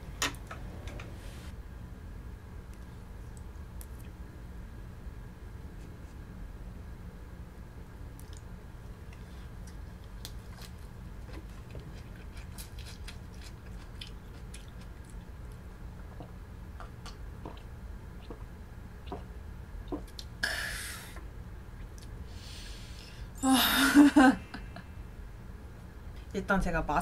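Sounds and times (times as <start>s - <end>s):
close-up chewing: 8.1s - 20.3s.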